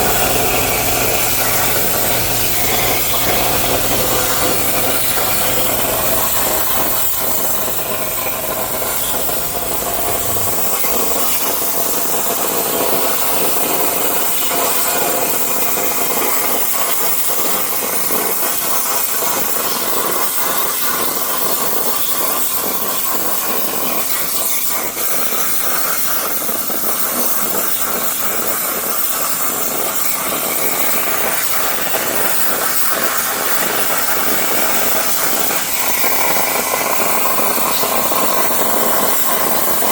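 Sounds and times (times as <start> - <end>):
plasma torch cutting steel: 0.0 - 39.9
low hum: 3.2 - 11.4.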